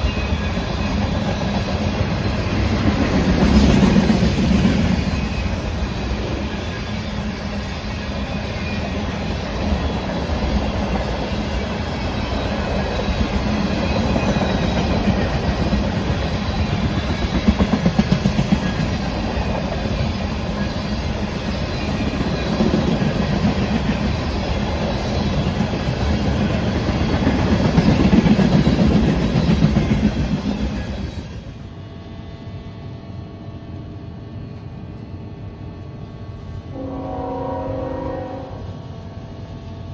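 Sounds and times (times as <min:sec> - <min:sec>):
train wheels clacking on rails: 0:00.0 - 0:31.5.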